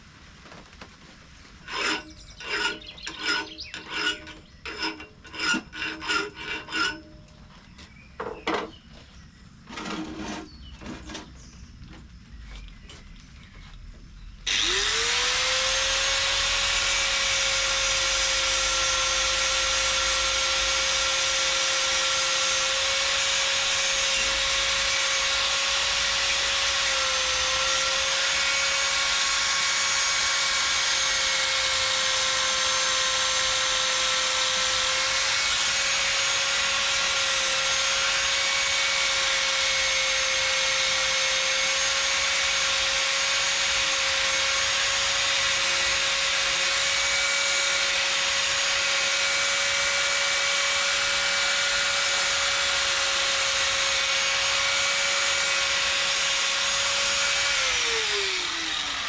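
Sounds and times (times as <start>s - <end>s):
small motor whining: 14.5s - 59.0s.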